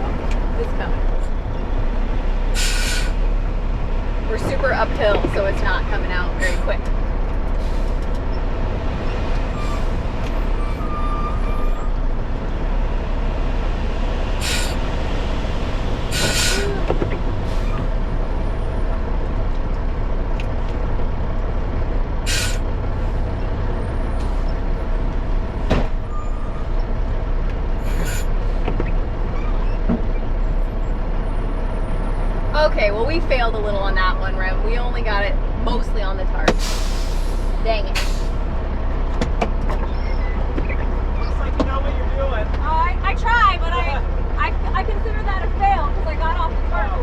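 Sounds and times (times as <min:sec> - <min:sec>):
diesel engine running: 0:00.0 - 0:47.0
air hissing: 0:14.4 - 0:14.8, 0:36.6 - 0:38.4.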